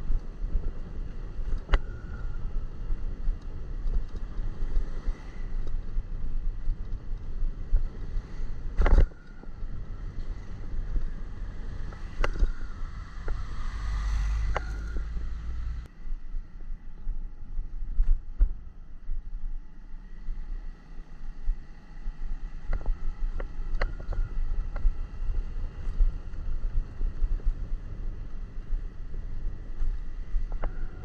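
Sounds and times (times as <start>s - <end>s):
wind buffeting microphone: 0.0s - 15.9s
road noise: 0.0s - 31.0s.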